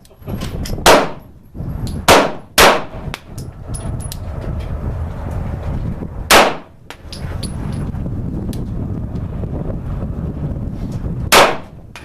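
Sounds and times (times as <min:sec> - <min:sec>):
pistol shots: 0:00.8 - 0:01.2, 0:02.1 - 0:03.0, 0:06.3 - 0:06.7, 0:11.3 - 0:11.8.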